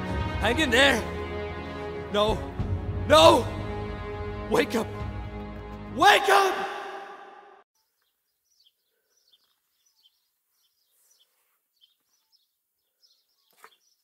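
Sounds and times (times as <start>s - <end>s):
music: 0.0s - 6.6s
faint high bird chirps: 7.8s - 14.0s.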